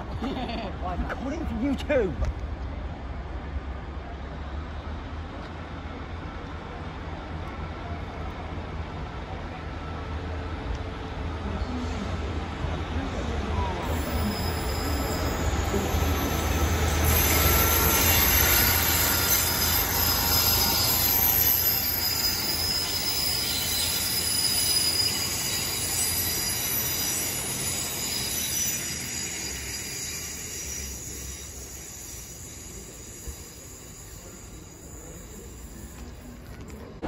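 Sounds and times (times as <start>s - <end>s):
diesel train engine rumbling: 0.0s - 37.0s
train wheel squeal: 13.0s - 36.9s.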